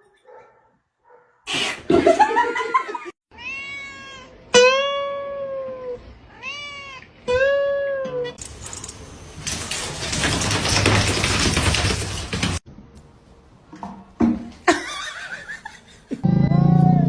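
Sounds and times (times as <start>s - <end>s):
cat meowing: 3.3s - 5.2s, 6.3s - 7.5s.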